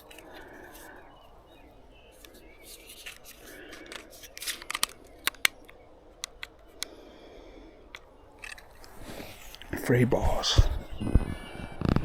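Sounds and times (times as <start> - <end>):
sharp plastic clicks: 0.0 - 0.9, 2.1 - 7.0, 7.9 - 9.7.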